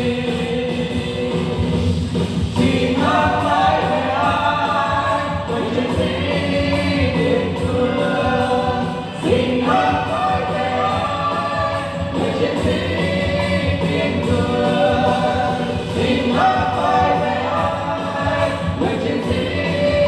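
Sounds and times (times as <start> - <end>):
group of voices singing: 0.0 - 20.0.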